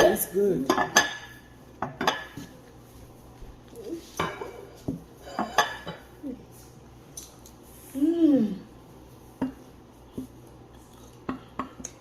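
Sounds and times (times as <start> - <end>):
cutlery clinking against plates: 4.2 - 6.1.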